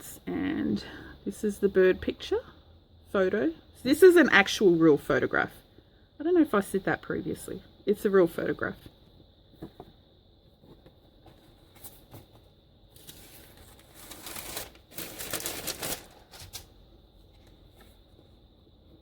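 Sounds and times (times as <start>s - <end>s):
paper and card rustling: 11.3s - 16.7s.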